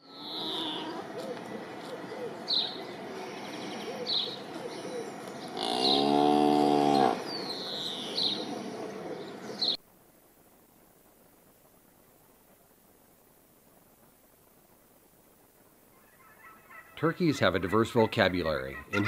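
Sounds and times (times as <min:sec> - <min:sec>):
birds chirping: 0:00.0 - 0:09.8, 0:15.9 - 0:19.0
calf mooing: 0:05.5 - 0:07.2.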